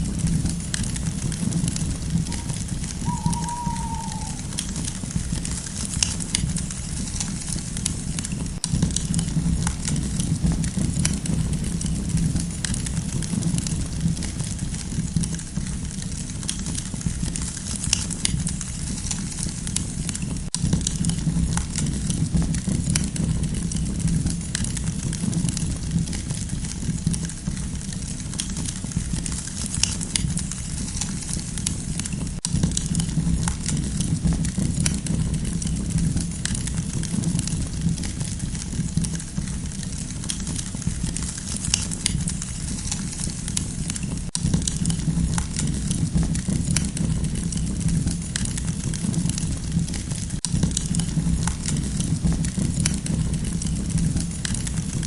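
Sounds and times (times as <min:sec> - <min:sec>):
campfire crackling and popping: 0:00.0 - 0:15.3, 0:50.4 - 0:55.0.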